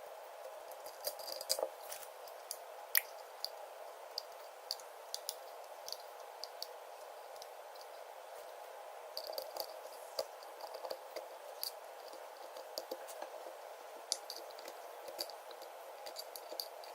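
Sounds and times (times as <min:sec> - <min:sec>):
steady hiss: 0:00.0 - 0:16.9
small clicks and taps: 0:00.4 - 0:07.9, 0:09.2 - 0:13.3, 0:14.1 - 0:16.9.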